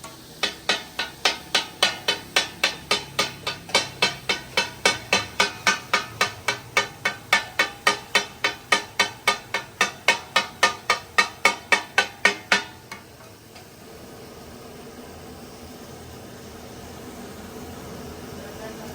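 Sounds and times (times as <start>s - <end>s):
metal-on-metal striking: 0.0s - 13.7s.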